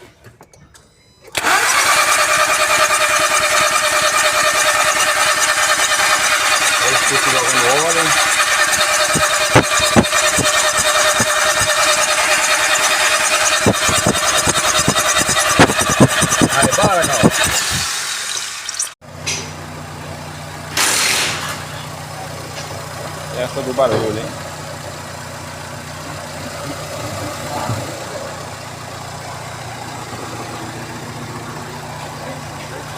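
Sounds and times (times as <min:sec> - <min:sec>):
engine mechanical clatter: 0:00.0 - 0:19.7, 0:20.6 - 0:32.9
irregular engine knocks: 0:08.6 - 0:12.0.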